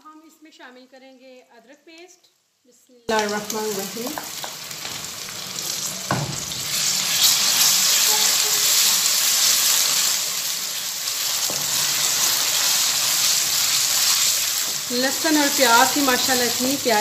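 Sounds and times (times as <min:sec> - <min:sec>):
onions sizzling in hot oil: 0:03.1 - 0:17.0
wooden spoon stirring: 0:06.7 - 0:17.0.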